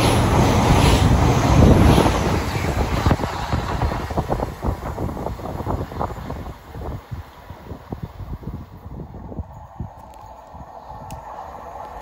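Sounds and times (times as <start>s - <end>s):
train passing at speed: 0.0s - 12.0s.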